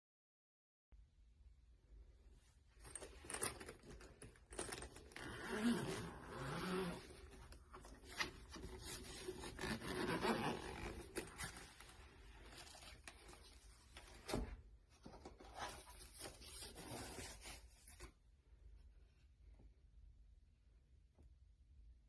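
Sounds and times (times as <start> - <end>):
makeup case rustling and clicking: 2.8 - 5.2.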